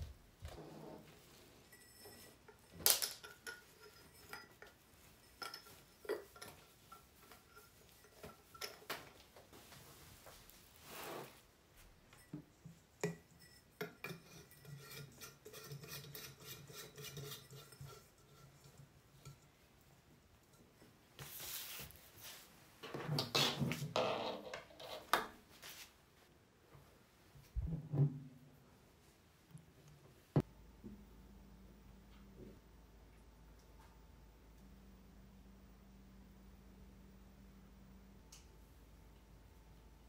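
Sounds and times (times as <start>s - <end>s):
metal lamp parts clinking: 1.7s - 9.1s.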